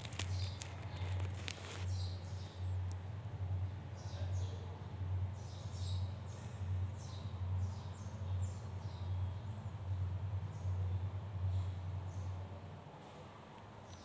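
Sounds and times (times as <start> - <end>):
birds chirping: 0.0 - 12.5
steady low hum: 0.0 - 14.0.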